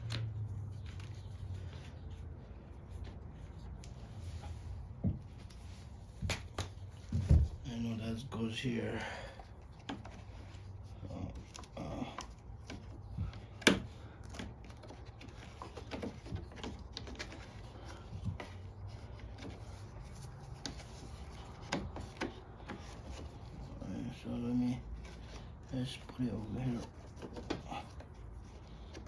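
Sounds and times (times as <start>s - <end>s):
plastic parts clicking and knocking: 9.4s - 23.7s, 24.9s - 29.0s.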